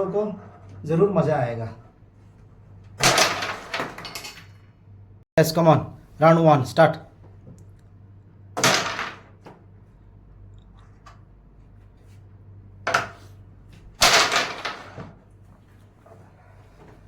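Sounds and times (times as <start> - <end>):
carrom pieces clacking on board: 3.0 - 4.6, 12.9 - 15.2.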